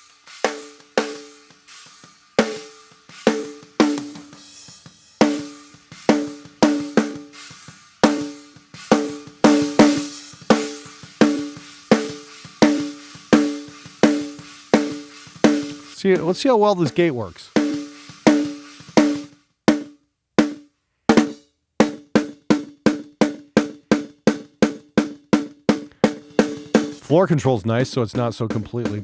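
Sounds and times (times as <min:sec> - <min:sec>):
hi-hat: 0:00.0 - 0:19.3
cymbal: 0:00.0 - 0:19.4, 0:25.8 - 0:27.1
snare drum hits: 0:05.2 - 0:22.3, 0:25.7 - 0:27.2.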